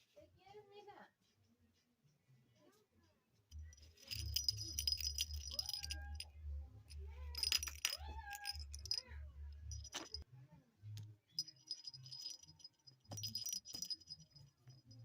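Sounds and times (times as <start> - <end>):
metallic jingling and rattling: 3.6 - 10.2, 11.4 - 15.0.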